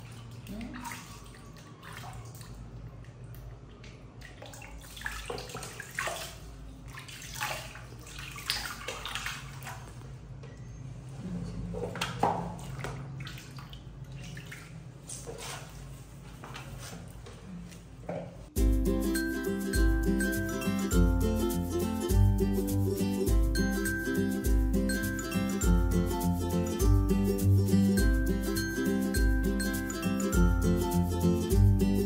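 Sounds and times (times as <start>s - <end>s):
water splashing in basin: 0.0s - 10.1s, 11.7s - 15.8s.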